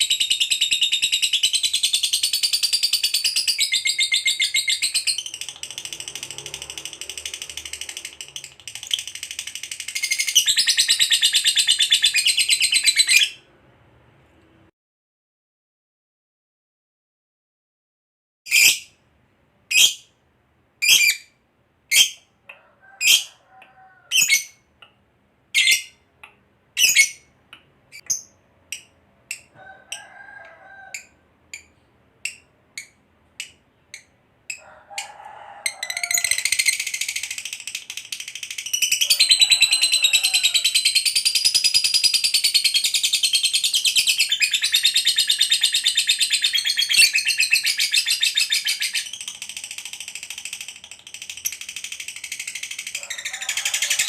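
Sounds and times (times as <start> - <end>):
lovebird chirping and trilling: 0.0 - 13.4, 18.5 - 19.0, 19.7 - 20.1, 20.8 - 22.3, 23.0 - 23.3, 24.1 - 24.7, 25.5 - 26.0, 26.8 - 27.3, 27.9 - 29.6, 35.8 - 54.0.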